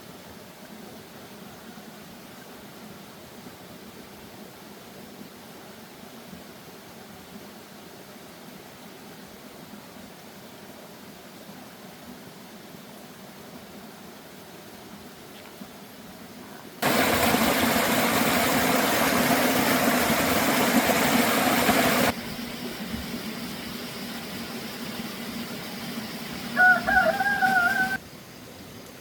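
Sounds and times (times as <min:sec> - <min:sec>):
loud rushing noise: 0:16.8 - 0:22.2
rooster crowing: 0:26.5 - 0:28.0.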